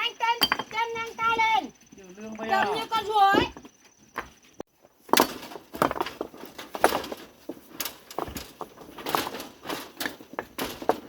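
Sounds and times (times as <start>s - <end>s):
irregular knocks and clatters: 2.5s - 11.0s.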